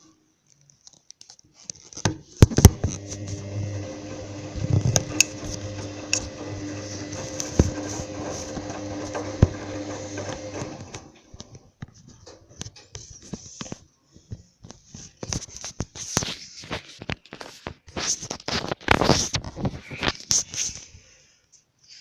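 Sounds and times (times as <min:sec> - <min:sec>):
washing machine motor humming: 0:02.6 - 0:11.6.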